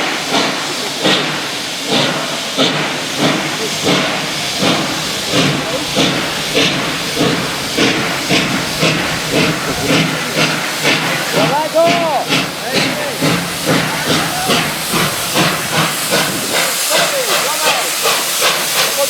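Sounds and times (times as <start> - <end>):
steam hiss: 0.0 - 19.0
steam locomotive exhaust chuffs: 0.0 - 19.0.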